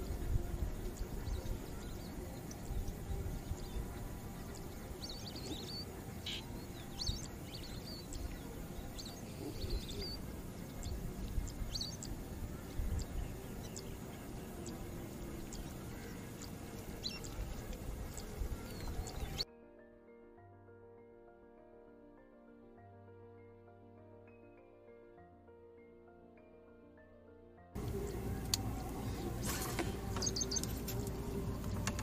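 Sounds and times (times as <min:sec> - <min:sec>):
small birds chirping: 0:00.0 - 0:19.4, 0:27.8 - 0:32.0
steady low rumble: 0:00.0 - 0:19.4, 0:27.8 - 0:32.0.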